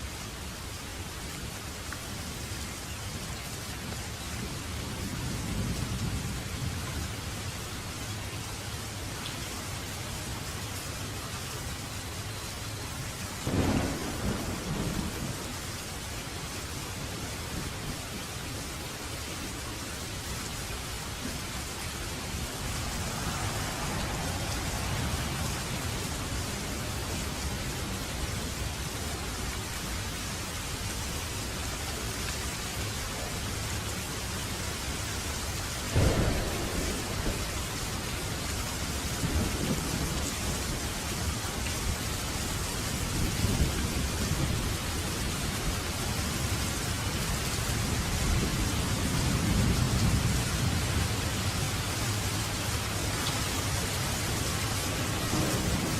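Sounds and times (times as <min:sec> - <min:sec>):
steady rain: 0:00.0 - 0:55.9
distant thunder rumble: 0:13.4 - 0:15.8, 0:21.1 - 0:29.3, 0:35.8 - 0:42.2, 0:54.3 - 0:55.9.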